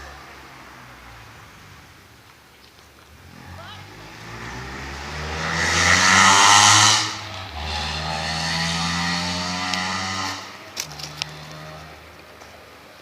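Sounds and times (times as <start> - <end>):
engine revving: 3.3 - 12.3.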